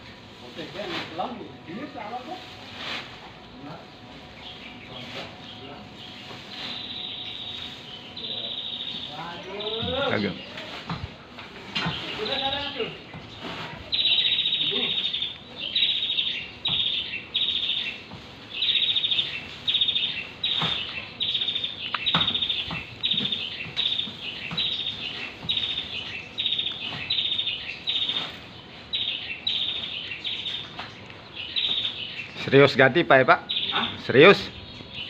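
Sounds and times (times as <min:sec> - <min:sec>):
bird chirping trilled notes: 0:01.2 - 0:10.7, 0:11.9 - 0:35.0.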